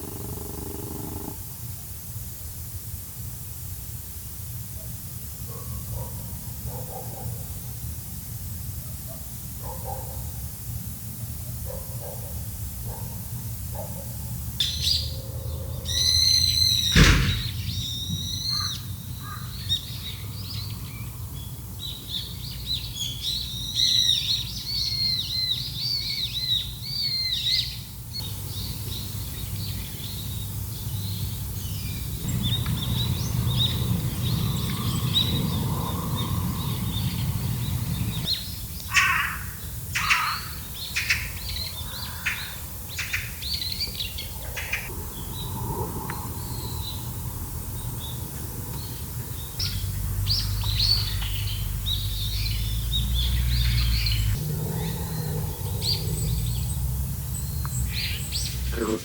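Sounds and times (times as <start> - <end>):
small birds chirping: 0.0 - 1.4, 14.6 - 59.0
sharp knock: 16.9 - 17.8
low rumble: 31.6 - 38.7.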